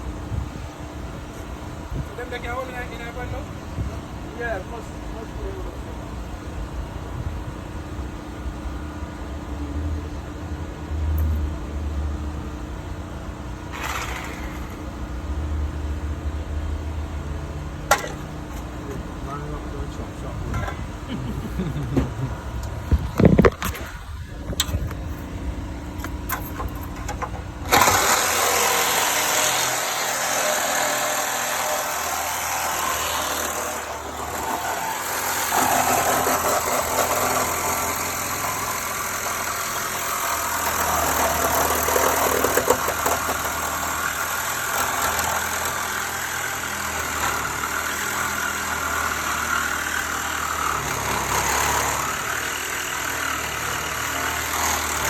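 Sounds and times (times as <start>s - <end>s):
power tool cutting metal: 13.7s - 15.0s, 26.3s - 55.0s.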